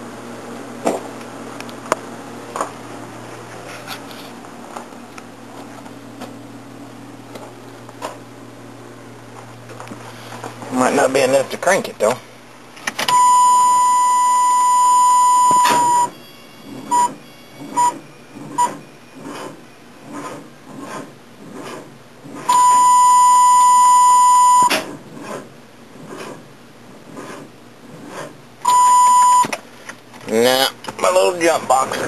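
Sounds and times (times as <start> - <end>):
jump-starter warning beeps: 13.1 - 19.4, 22.5 - 24.7, 28.6 - 29.6.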